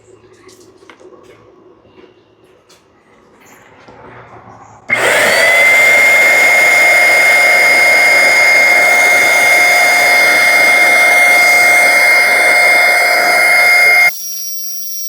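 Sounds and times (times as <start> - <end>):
electric paint sprayer whine: 4.9 - 15.0.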